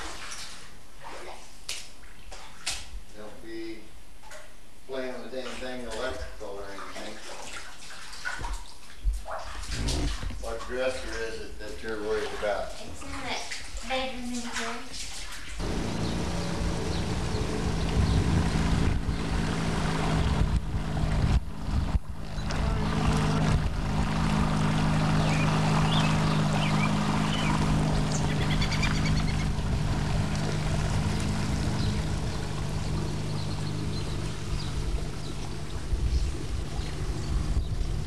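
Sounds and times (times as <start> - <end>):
water noise: 0.0 - 3.0, 4.1 - 38.0
small motor humming: 15.6 - 38.0.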